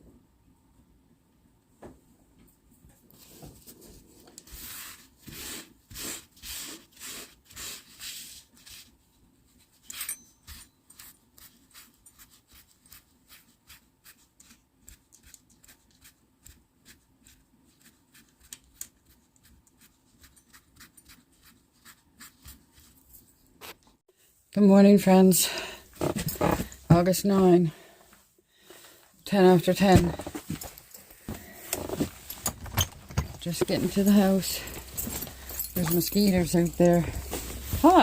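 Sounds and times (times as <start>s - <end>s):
hand rubbing and scraping object: 29.7s - 38.0s.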